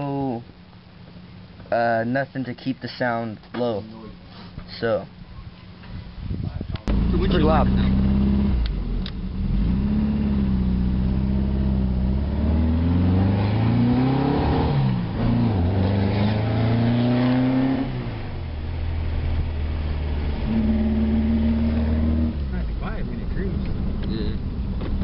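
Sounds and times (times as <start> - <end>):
loud car engine revving: 6.9 - 25.0.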